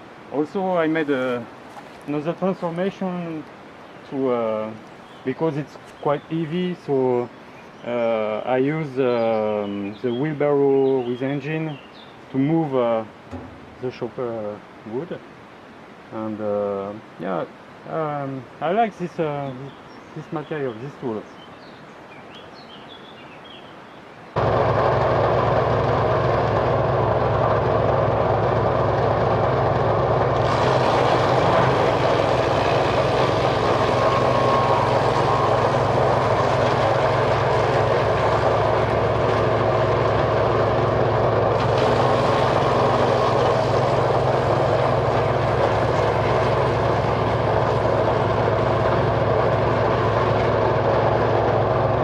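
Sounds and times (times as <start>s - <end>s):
wood chipper running: 13.3s - 14.0s, 24.4s - 52.0s.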